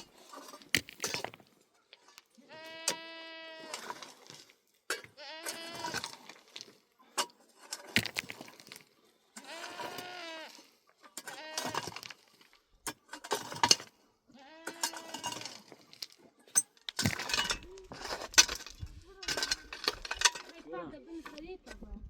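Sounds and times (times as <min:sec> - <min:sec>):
goats bleating: 0:02.4 - 0:03.8, 0:05.1 - 0:06.1, 0:09.4 - 0:10.6, 0:11.2 - 0:12.1, 0:14.3 - 0:15.4.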